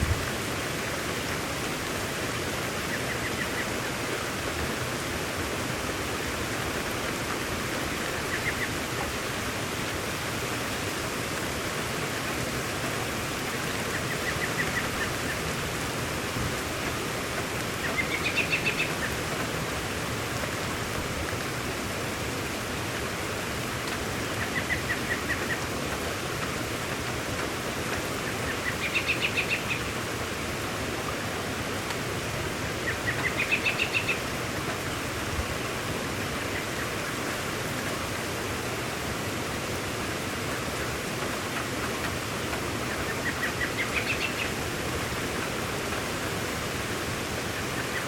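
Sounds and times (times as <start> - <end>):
steady rain falling: 0.0 - 48.0
songbird calling: 8.3 - 8.7, 17.8 - 19.2, 28.2 - 30.0, 32.8 - 34.2, 42.9 - 44.6.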